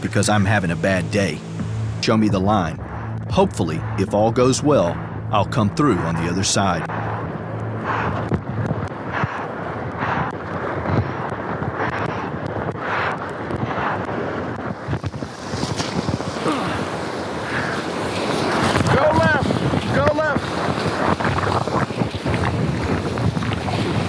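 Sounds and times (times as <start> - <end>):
wind buffeting microphone: 0.0 - 24.0
paddle splashes: 7.0 - 24.0
whitewater rapids rushing: 7.8 - 24.0.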